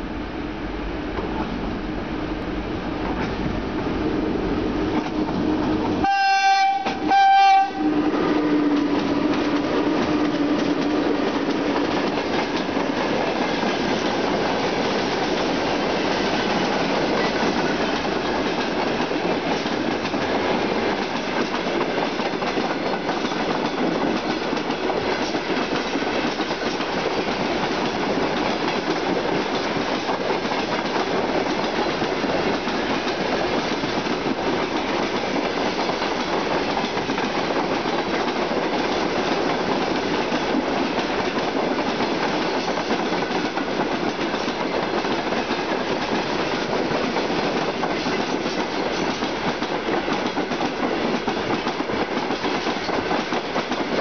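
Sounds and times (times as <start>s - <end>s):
locomotive horn blasts: 6.0s - 8.0s
train wheels clattering over rail joints: 8.3s - 54.0s.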